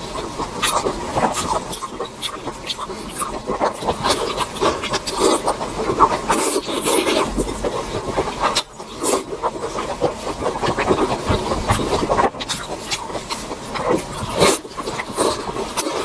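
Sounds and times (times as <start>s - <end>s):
person chewing food: 0.6s - 16.0s.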